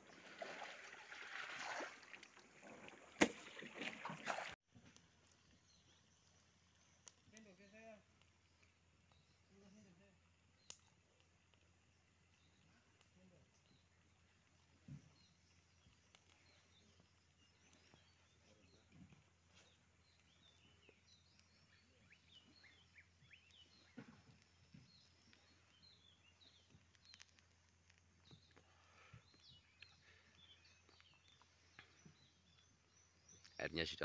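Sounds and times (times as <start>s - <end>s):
faint birdsong chirps: 0.0s - 34.0s
faint clicks: 6.2s - 9.5s, 10.3s - 18.2s, 22.6s - 32.7s.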